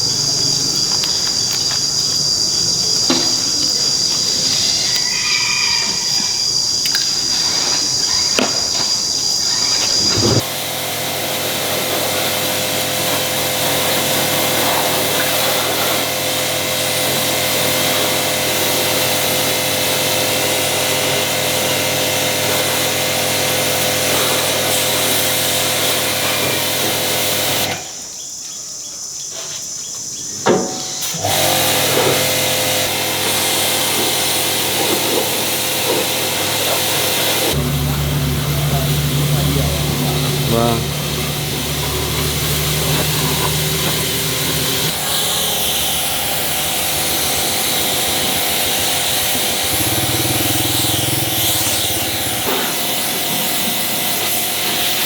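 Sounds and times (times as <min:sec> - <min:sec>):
power tool whining: 0:03.0 - 0:27.9, 0:30.9 - 0:55.0
hissing noise: 0:09.6 - 0:20.8, 0:33.3 - 0:55.0.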